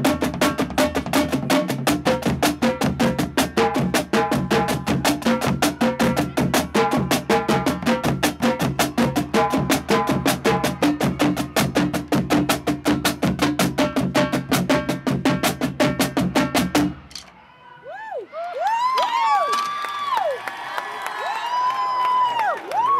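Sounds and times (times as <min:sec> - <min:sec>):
marching drumline playing: 0:00.0 - 0:17.2
crowd whooping: 0:17.4 - 0:22.9.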